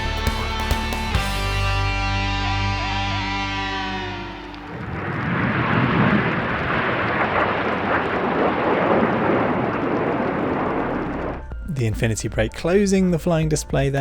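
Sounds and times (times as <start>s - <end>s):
jets in flight: 4.1s - 11.6s.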